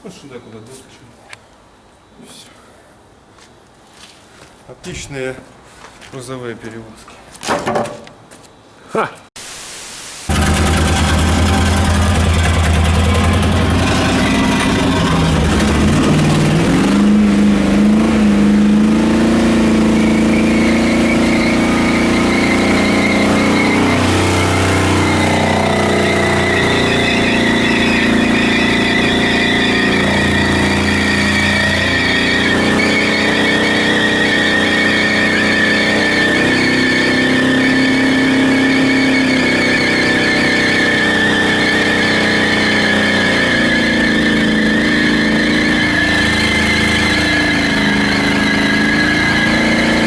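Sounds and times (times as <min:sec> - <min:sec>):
car engine running while driving: 0:10.3 - 0:50.0.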